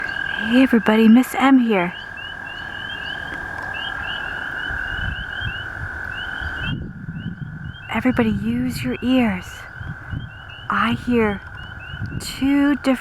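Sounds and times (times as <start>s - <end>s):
frogs peeping: 0.0s - 13.0s
toads trilling: 0.0s - 13.0s.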